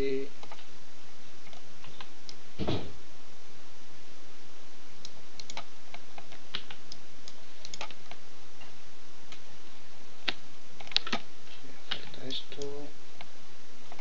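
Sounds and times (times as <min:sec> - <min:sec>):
steady hiss: 0:00.0 - 0:14.0
computer mouse and keyboard clicks: 0:05.4 - 0:08.2, 0:10.3 - 0:11.3.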